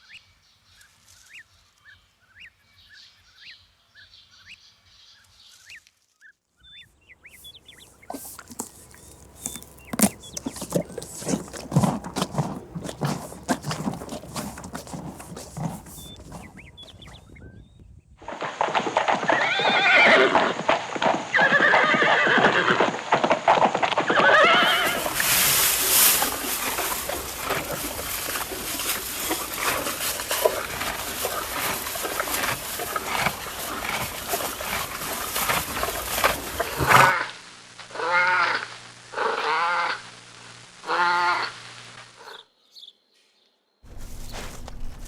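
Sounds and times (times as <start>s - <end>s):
horses whinnying: 7.8s - 17.3s, 19.3s - 20.5s, 24.1s - 37.2s.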